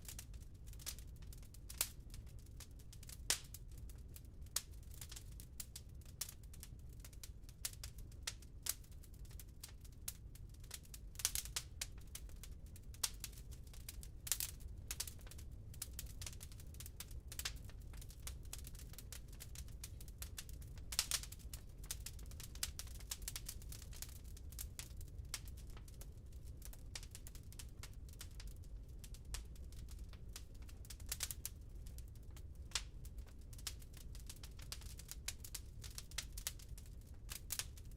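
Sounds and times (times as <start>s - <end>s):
wood fire crackling: 0.0s - 37.9s.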